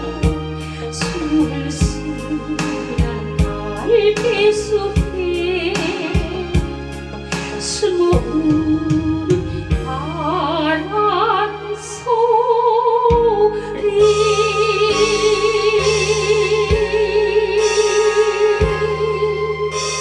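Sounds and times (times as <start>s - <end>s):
woman singing a ballad: 0.0s - 20.0s
low drum beat: 1.2s - 10.0s, 18.4s - 19.2s
sustained accompaniment: 13.6s - 20.0s.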